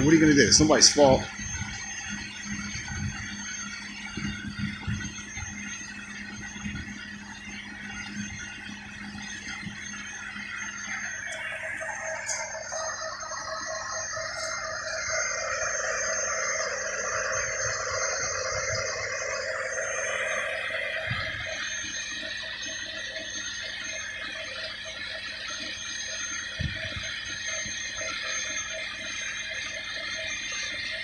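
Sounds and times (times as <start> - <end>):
quiet electronic beep: 0.0 - 23.0.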